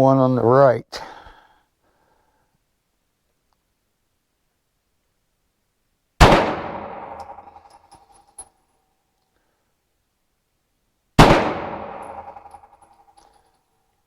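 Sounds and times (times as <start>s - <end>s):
pistol shots: 6.2s - 7.8s, 11.2s - 12.8s.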